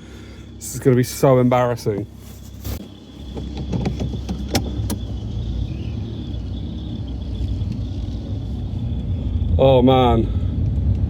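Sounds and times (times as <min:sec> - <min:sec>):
car engine idling: 0:00.0 - 0:11.0
high exhaust whistle: 0:01.6 - 0:10.6
sharp clicks and knocks: 0:02.8 - 0:05.2.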